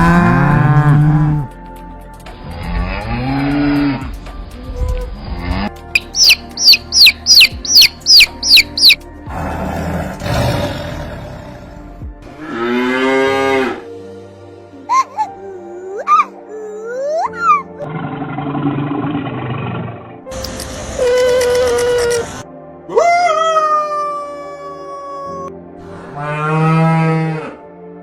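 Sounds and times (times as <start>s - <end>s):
background music: 0.0s - 28.0s
high falling chirps: 6.0s - 9.0s.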